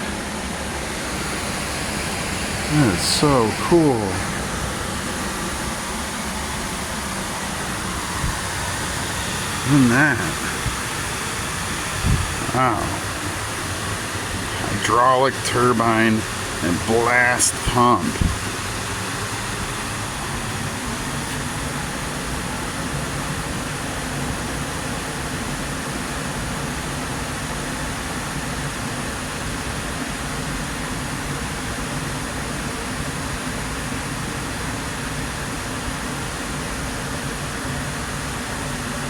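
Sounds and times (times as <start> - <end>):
water rushing over dam: 1.0 - 19.0.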